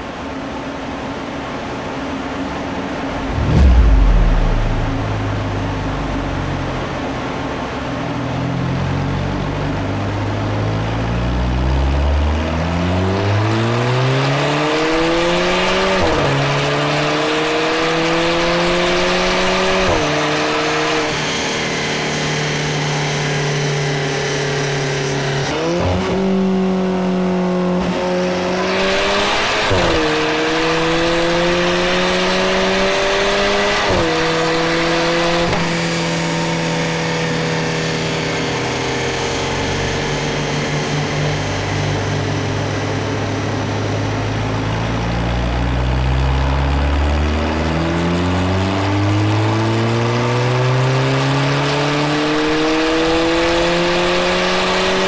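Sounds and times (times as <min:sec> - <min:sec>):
car engine revving: 0:02.9 - 0:07.3.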